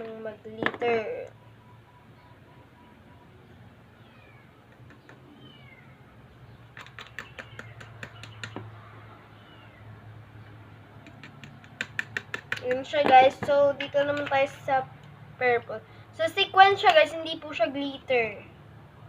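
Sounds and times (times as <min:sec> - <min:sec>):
cat mewing: 0:04.0 - 0:06.1.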